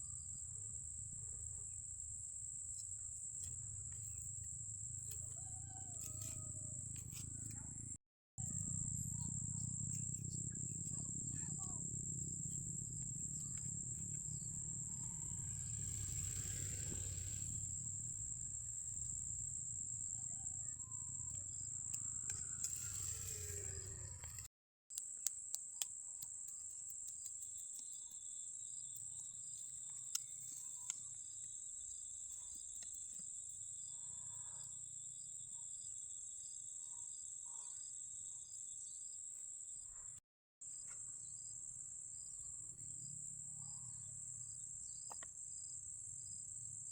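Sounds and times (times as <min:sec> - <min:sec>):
low rumble: 0:08.4 - 0:20.1
insects trilling: 0:08.4 - 0:40.0, 0:40.7 - 0:46.9.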